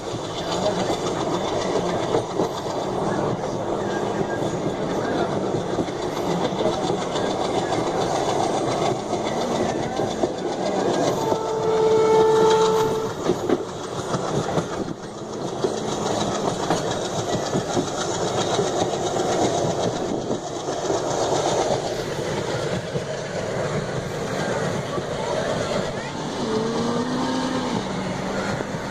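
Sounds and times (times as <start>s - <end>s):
moving train running noise: 0.0s - 28.9s
rail clatter: 0.0s - 28.9s
train horn: 11.1s - 13.4s.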